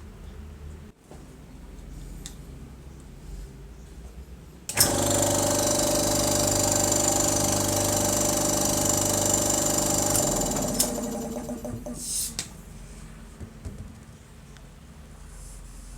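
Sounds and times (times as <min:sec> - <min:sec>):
air compressor running: 0:04.7 - 0:12.4.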